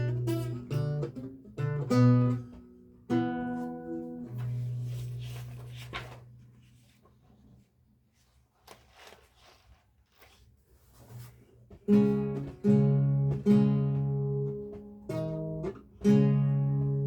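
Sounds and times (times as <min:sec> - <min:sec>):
plucked lute chord: 0:00.0 - 0:05.2, 0:11.9 - 0:17.0
faint rustles and clicks: 0:03.5 - 0:16.1.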